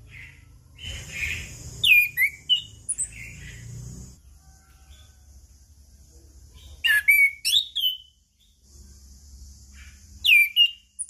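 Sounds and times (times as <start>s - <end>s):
thrush whistled song: 0.0s - 3.8s, 6.8s - 8.2s, 10.2s - 11.0s.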